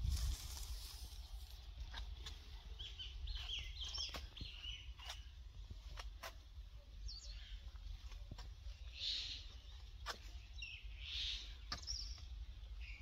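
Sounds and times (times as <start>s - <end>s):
bird chirping: 2.2s - 5.4s, 6.8s - 13.0s.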